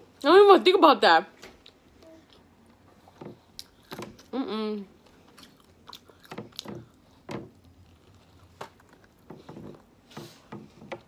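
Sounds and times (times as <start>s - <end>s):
chewing with wet mouth clicks: 3.5s - 4.3s, 5.1s - 7.0s.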